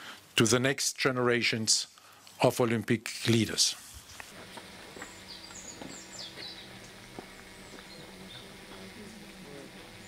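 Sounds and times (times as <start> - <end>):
birds calling faintly: 4.1 - 10.0
low steady hum: 4.2 - 10.0.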